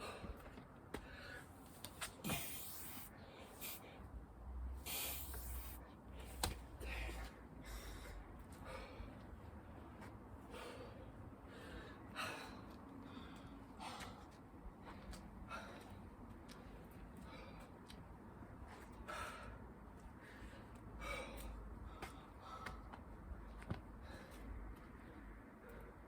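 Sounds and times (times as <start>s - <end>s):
person gasping breaths: 6.8s - 9.3s.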